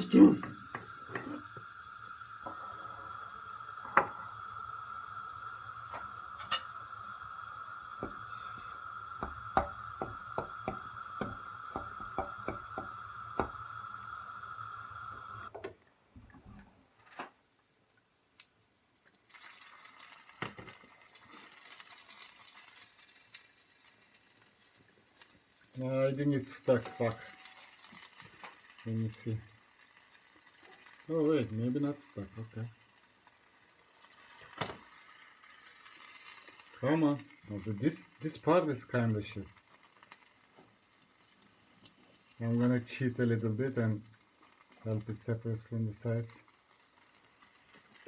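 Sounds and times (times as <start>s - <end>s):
omelette crackling in a frying pan: 0.0s - 15.5s, 17.6s - 48.0s
steady high hum: 0.0s - 15.5s.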